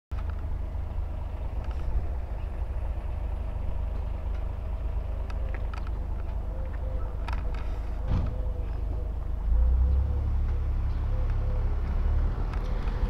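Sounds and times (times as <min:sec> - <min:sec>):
motorcycle engine idling: 0:00.2 - 0:09.5.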